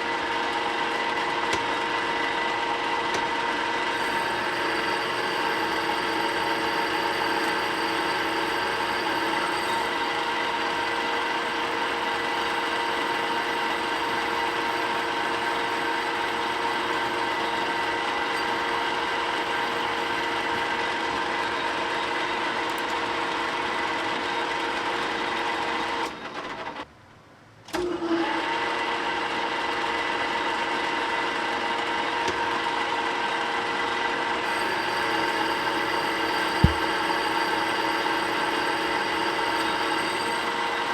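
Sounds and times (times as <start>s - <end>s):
machine tool whining: 0.0s - 26.8s, 34.3s - 40.9s.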